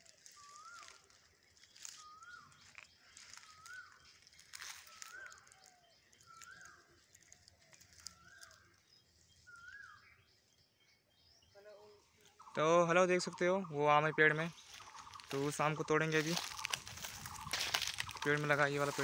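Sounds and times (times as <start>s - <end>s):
faint crackles: 0.0s - 9.6s, 14.4s - 19.0s.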